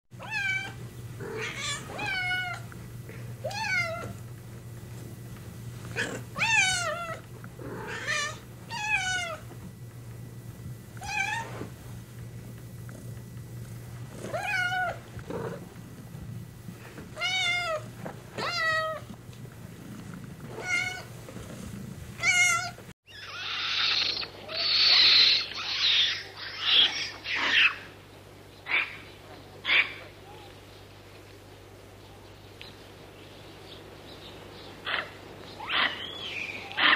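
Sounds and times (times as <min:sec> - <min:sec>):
harsh noisy animal calls: 0:22.2 - 0:28.0, 0:34.8 - 0:36.9.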